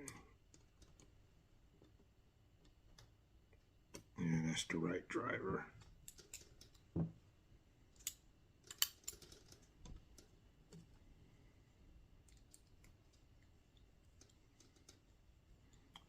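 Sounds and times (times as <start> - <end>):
faint clicks of small parts handled: 0.0 - 4.1, 5.7 - 7.0, 7.9 - 11.1, 12.2 - 16.0.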